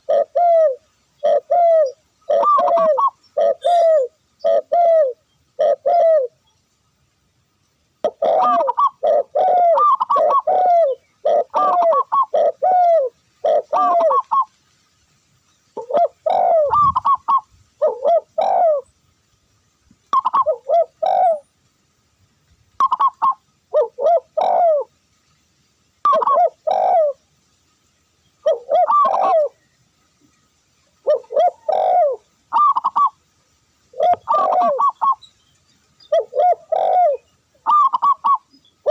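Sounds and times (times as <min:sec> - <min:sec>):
dove cooing: 0:00.0 - 0:06.4, 0:08.0 - 0:14.5, 0:15.8 - 0:18.9, 0:20.1 - 0:21.5, 0:22.8 - 0:24.9, 0:26.0 - 0:27.2, 0:28.4 - 0:29.6, 0:31.0 - 0:33.2, 0:33.9 - 0:35.3, 0:36.0 - 0:38.9.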